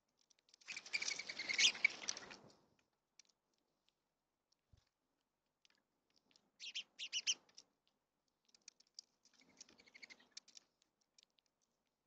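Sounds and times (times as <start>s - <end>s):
small birds chirping: 0.5s - 2.4s, 6.3s - 7.6s, 8.4s - 11.4s
light clicks and taps: 2.0s - 6.6s, 7.3s - 12.0s.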